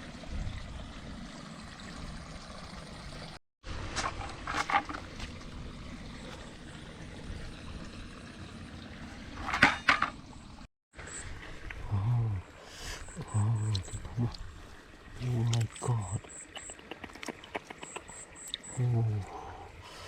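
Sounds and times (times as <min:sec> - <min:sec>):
running water flowing: 0:00.0 - 0:20.0
water splashes: 0:12.6 - 0:19.3.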